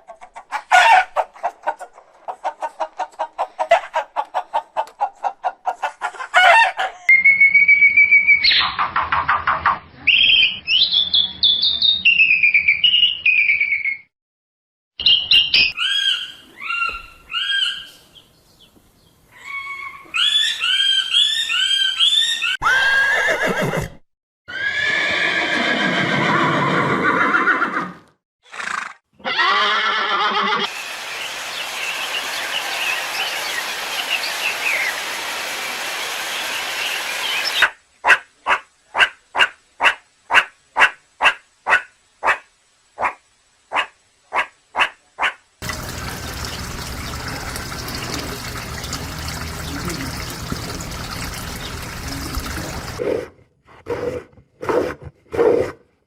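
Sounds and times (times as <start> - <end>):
warbling animal calls: 45.6 - 53.2.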